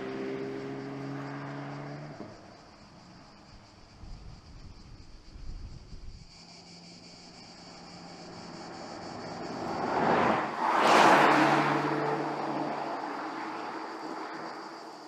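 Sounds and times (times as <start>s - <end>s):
car driving past: 0.0s - 2.6s, 7.5s - 15.0s.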